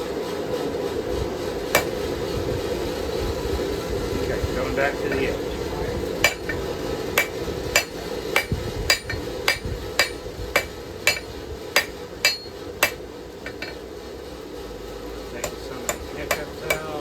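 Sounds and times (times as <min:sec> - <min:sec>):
hammer striking steel on anvil: 0:01.7 - 0:02.0, 0:06.2 - 0:13.8, 0:15.4 - 0:17.0.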